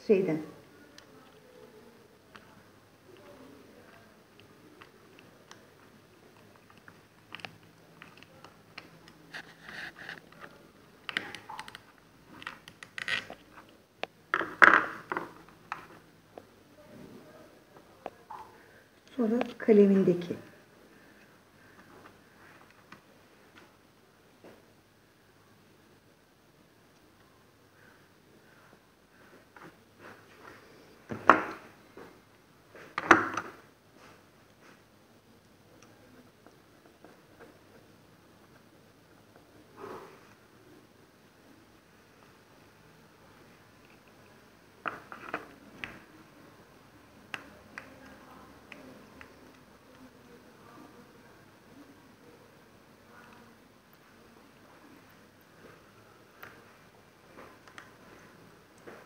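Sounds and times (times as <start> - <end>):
faint steady hum: 0.0 - 59.0
scraping and rustling: 9.3 - 10.6.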